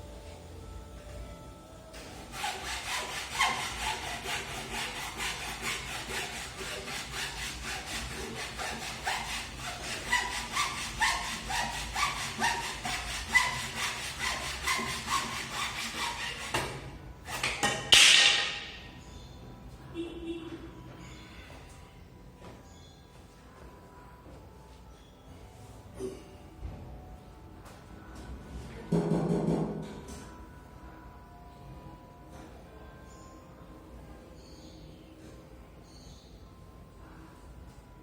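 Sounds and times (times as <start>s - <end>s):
hand saw cutting wood: 2.0s - 17.8s.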